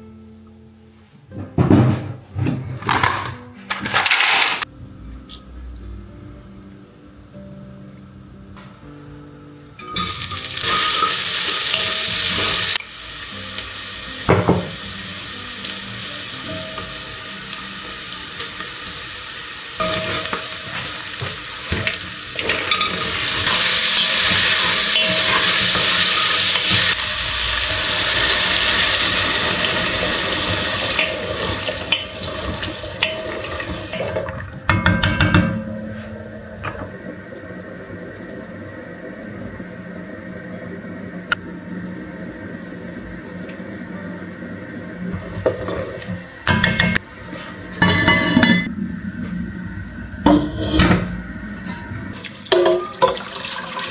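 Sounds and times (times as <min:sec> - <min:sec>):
utensils clinking: 0:02.7 - 0:04.7, 0:19.8 - 0:27.0, 0:47.8 - 0:48.7
hissing like sizzling: 0:10.0 - 0:34.0.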